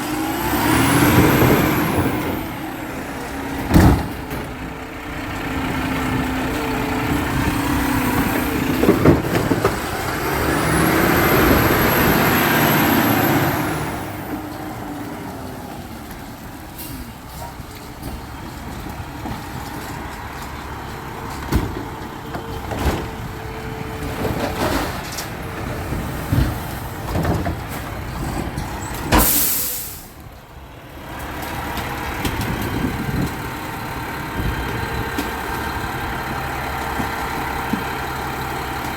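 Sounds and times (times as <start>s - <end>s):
garbage truck running: 0.0s - 38.9s
clanks and knocks: 24.0s - 29.3s
air brake hiss: 29.2s - 30.2s.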